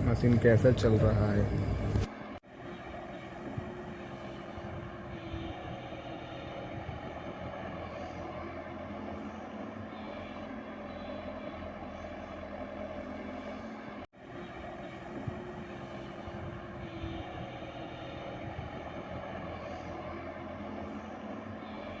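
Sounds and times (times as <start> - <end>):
excavator diesel engine running: 0.0 - 2.1.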